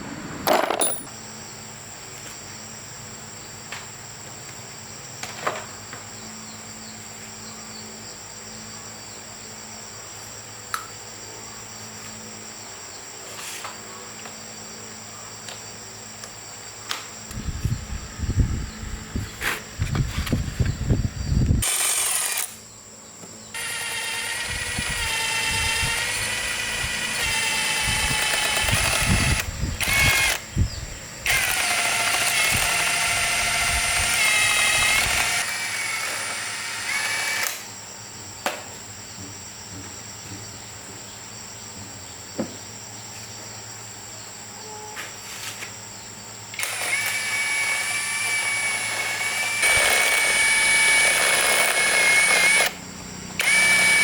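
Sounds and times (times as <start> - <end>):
power tool whining on metal: 21.6 - 22.6, 23.5 - 30.5, 31.2 - 37.7, 46.5 - 54.0.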